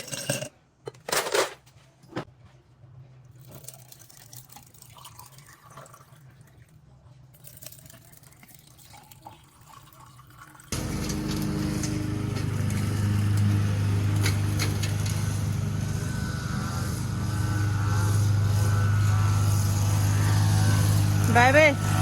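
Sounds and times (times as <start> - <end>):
liquid dripping and pouring: 3.4 - 10.8
steady motor sound: 10.7 - 22.0.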